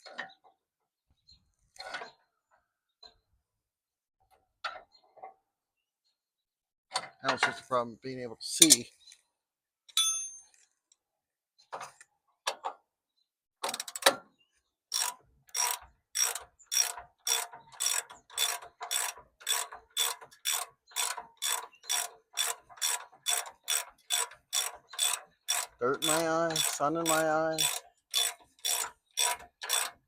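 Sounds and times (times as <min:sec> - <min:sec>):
metallic clink with ring: 0:09.9 - 0:10.6
ratchet wrench clicking: 0:14.9 - 0:30.0.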